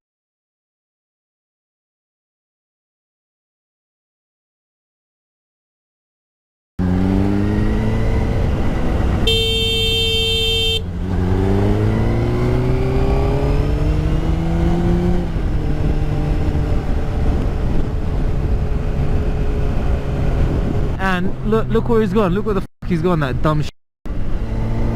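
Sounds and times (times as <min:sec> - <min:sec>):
motorcycle engine: 0:06.8 - 0:21.8, 0:24.1 - 0:24.9
vehicle horn: 0:09.2 - 0:10.9.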